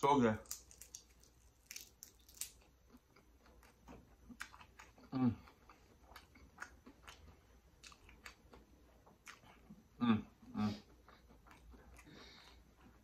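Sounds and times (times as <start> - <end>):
crunchy chewing: 0.4 - 10.0, 10.8 - 13.0.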